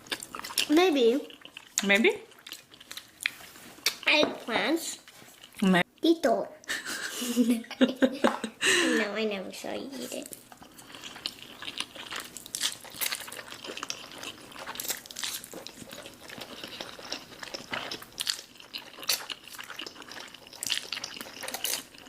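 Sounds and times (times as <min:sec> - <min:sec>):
wet chewing and slurping: 0:00.0 - 0:05.6, 0:10.3 - 0:22.0.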